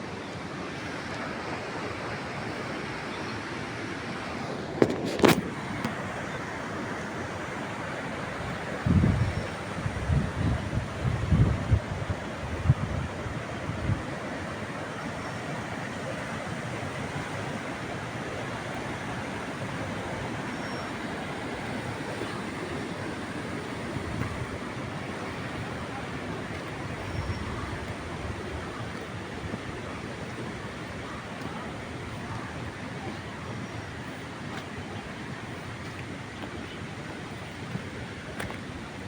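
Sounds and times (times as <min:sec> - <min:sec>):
low wind gusts: 0:00.0 - 0:39.0
waterfall rushing: 0:13.4 - 0:39.0.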